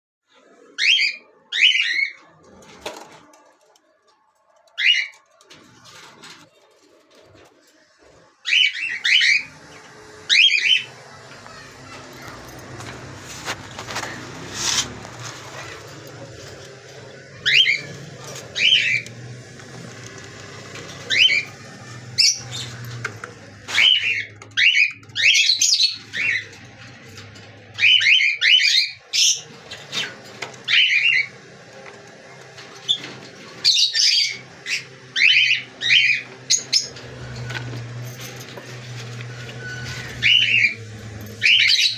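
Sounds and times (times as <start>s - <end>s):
cockatiels chirping and whistling: 0.7s - 2.2s, 4.8s - 5.2s, 8.4s - 12.5s, 15.5s - 26.6s, 27.8s - 31.8s, 32.6s - 37.5s, 39.3s - 41.9s.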